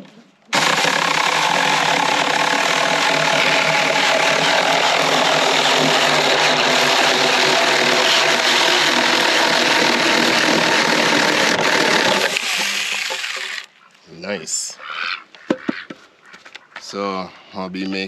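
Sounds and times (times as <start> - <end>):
electric chainsaw cutting wood: 0.5 - 13.7.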